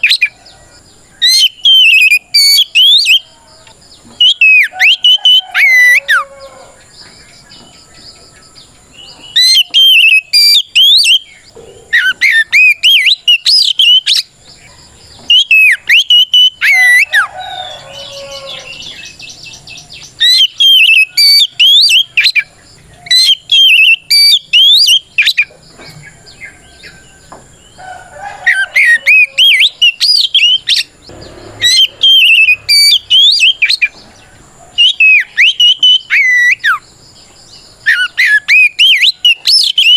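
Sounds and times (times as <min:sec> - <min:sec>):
bird singing whistled phrases: 0:01.2 - 0:03.4, 0:04.2 - 0:06.3, 0:09.0 - 0:14.3, 0:15.3 - 0:19.1, 0:20.2 - 0:25.5, 0:28.5 - 0:30.9, 0:31.6 - 0:34.0, 0:34.8 - 0:36.8, 0:37.8 - 0:39.9.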